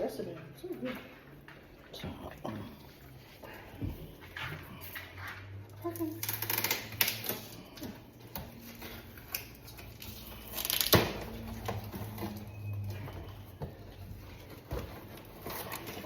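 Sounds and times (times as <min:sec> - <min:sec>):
cardboard packaging handled: 0:13.2 - 0:16.0.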